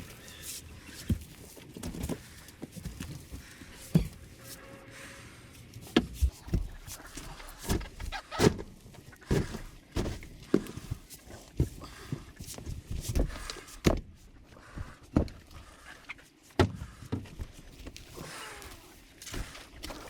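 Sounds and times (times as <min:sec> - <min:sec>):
knocks and thuds: 0:07.6 - 0:10.8.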